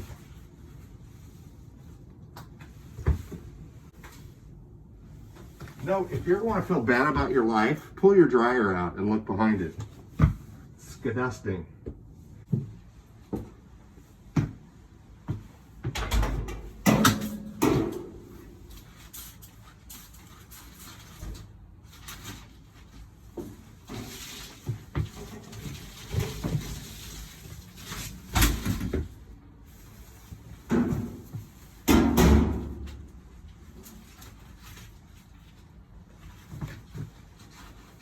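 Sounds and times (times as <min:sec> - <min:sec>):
knocks and clunks from clothes dryer: 0:14.3 - 0:18.7, 0:30.6 - 0:33.2.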